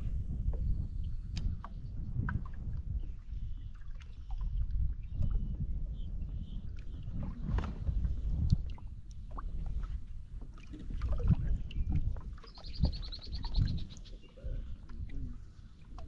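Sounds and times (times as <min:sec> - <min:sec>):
wind and water rumble: 0:00.0 - 0:16.0.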